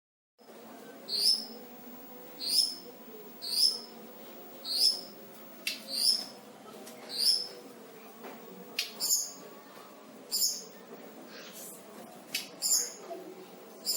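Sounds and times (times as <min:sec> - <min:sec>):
bird calling with high sliding calls: 0:07.1 - 0:07.5, 0:12.6 - 0:13.0.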